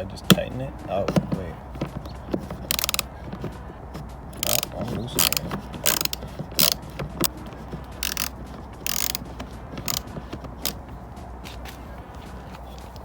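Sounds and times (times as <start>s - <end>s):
ratchet wrench clicking: 1.8s - 11.8s.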